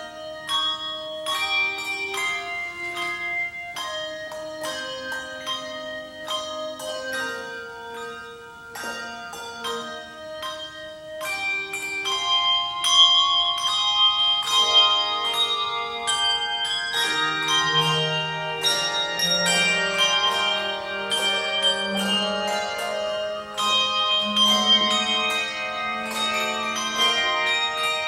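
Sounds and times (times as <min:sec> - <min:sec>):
bell melody: 0:00.0 - 0:28.0.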